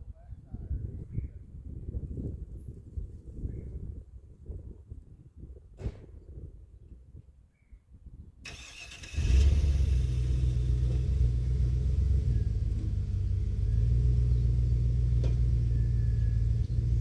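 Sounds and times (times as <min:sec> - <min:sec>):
pickup truck engine rumbling: 0:08.5 - 0:17.0.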